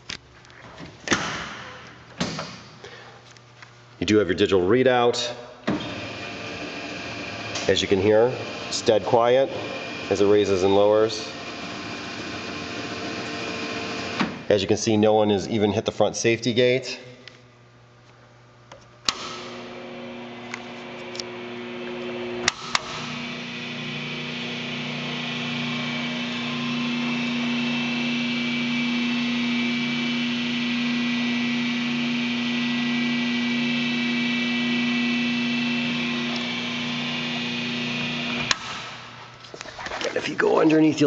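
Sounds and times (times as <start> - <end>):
belt sander motor hum: 5.9 - 14.2, 19.4 - 38.7.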